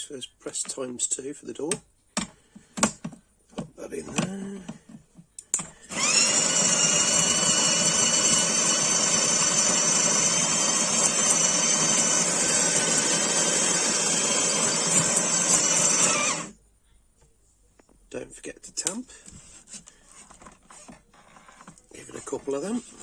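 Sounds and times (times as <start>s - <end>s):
coffee grinder motor whining: 5.6s - 16.6s, 20.2s - 23.0s.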